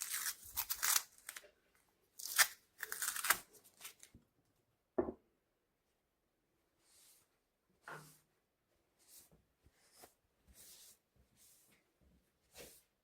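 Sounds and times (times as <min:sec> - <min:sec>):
tape being peeled off: 0:00.0 - 0:01.5, 0:02.2 - 0:04.1.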